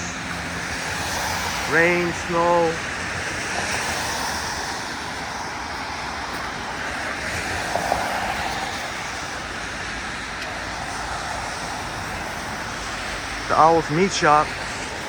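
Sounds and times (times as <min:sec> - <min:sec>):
rain: 0:00.0 - 0:15.0
tyres hissing on wet road: 0:00.0 - 0:15.0.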